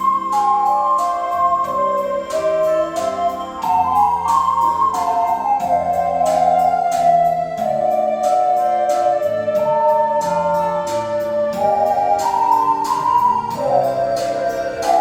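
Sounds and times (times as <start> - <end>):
keyboard accompaniment with beat: 0.0 - 15.0
ocarina ensemble playing melody: 0.0 - 15.0.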